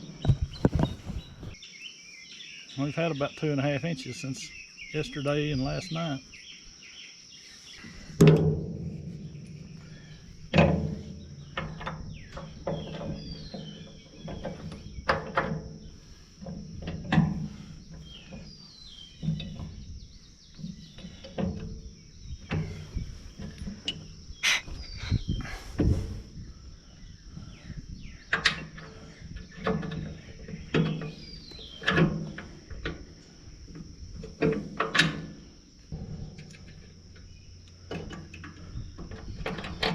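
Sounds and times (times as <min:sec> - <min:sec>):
knocks and clunks: 0:00.0 - 0:01.6, 0:08.0 - 0:39.9
bird chirps: 0:00.0 - 0:08.2, 0:09.1 - 0:16.3, 0:17.5 - 0:25.8, 0:26.4 - 0:32.1
insects droning: 0:00.0 - 0:39.9.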